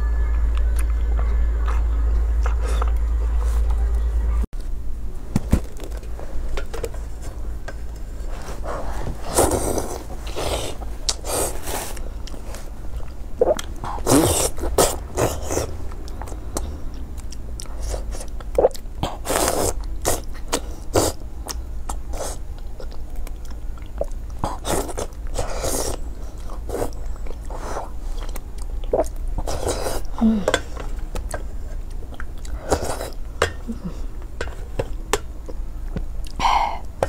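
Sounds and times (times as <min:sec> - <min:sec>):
steady low hum: 0:00.0 - 0:37.0
wet chewing and biting: 0:09.3 - 0:30.2.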